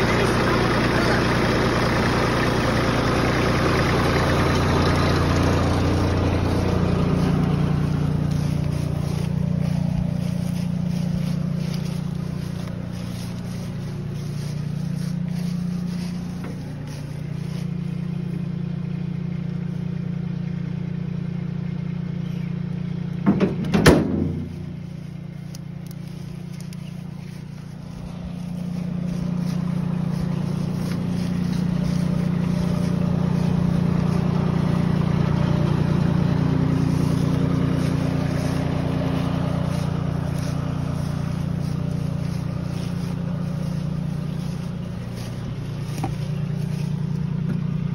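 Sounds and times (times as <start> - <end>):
diesel tractor engine running: 0.0 - 47.9
loud clatter of knocks: 23.2 - 24.5.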